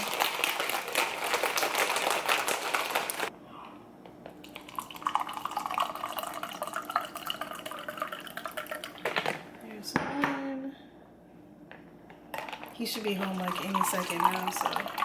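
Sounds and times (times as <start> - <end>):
ice rattling in cocktail shaker: 0.0 - 3.3, 12.4 - 15.0
ice clinking: 4.4 - 9.1, 12.4 - 15.0
liquid pouring into glass: 4.4 - 9.2, 13.1 - 15.0.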